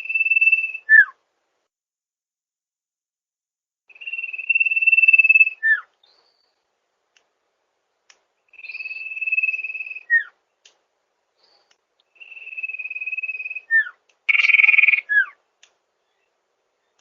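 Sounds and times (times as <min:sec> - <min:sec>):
songbird singing trilled phrases: 0:00.0 - 0:01.1, 0:03.9 - 0:06.7, 0:08.5 - 0:10.4, 0:11.5 - 0:15.4
bird harsh rasp: 0:14.3 - 0:15.2.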